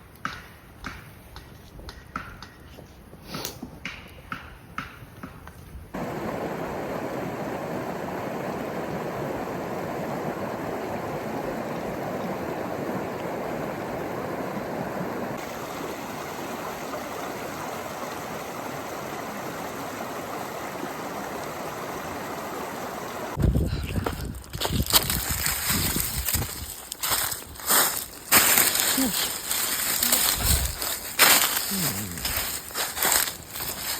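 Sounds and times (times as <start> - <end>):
river water rushing over rocks: 6.0 - 23.4.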